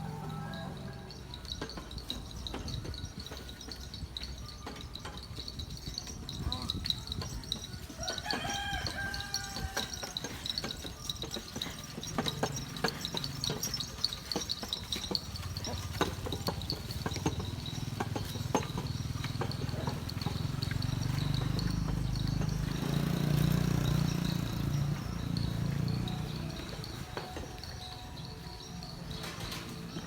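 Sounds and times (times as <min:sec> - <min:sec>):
motor engine running: 0:09.3 - 0:30.0.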